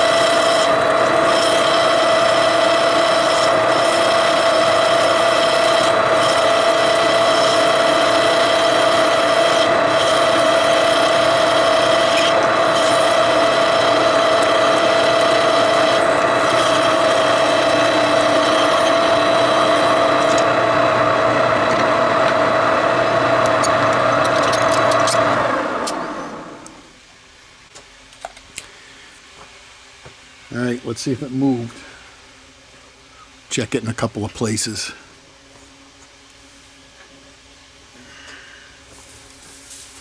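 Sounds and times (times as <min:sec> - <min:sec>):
rasping metal cutting: 0:00.0 - 0:26.8
machine tool whine: 0:00.0 - 0:27.0.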